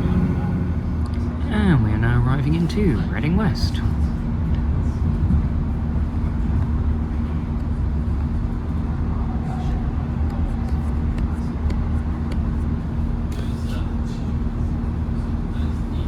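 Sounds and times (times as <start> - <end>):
diesel train running: 0.0 - 16.0.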